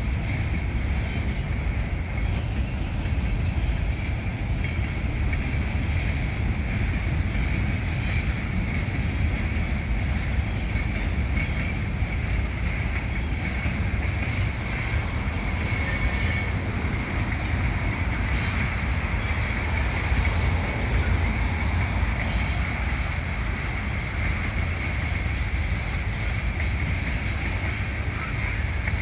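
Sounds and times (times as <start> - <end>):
freight train rumbling on rails: 0.0 - 29.0
high wheel squeal: 14.8 - 21.6.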